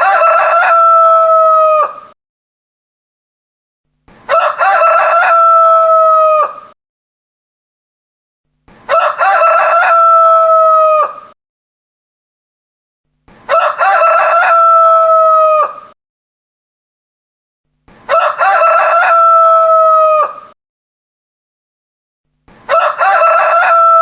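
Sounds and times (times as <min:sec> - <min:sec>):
rooster crowing: 0:00.0 - 0:02.2, 0:04.3 - 0:06.8, 0:08.9 - 0:11.4, 0:13.5 - 0:16.0, 0:18.1 - 0:20.6, 0:22.7 - 0:24.0.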